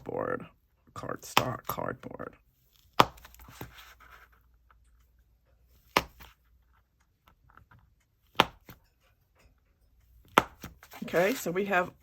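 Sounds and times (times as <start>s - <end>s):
card rustling: 2.6s - 8.0s, 10.3s - 12.0s.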